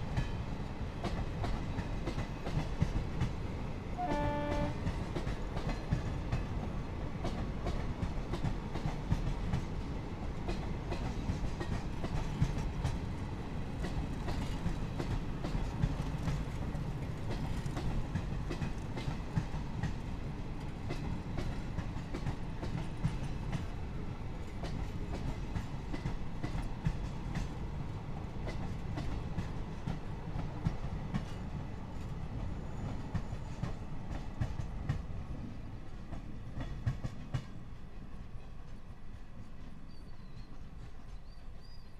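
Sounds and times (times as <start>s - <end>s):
train coaches rumbling: 0.0s - 41.9s
wheels clacking over rail joints: 10.4s - 23.8s.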